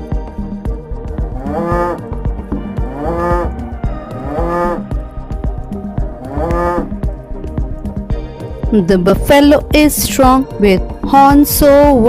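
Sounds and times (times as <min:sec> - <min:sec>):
background music with beat: 0:00.0 - 0:12.0
cow mooing: 0:01.2 - 0:07.2.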